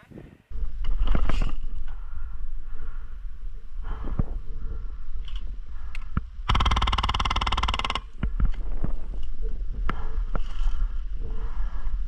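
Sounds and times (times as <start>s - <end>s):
sharp clicks: 5.3s - 8.6s
airsoft gun full-auto burst: 6.5s - 8.0s
wind rumble on microphone: 8.1s - 12.0s.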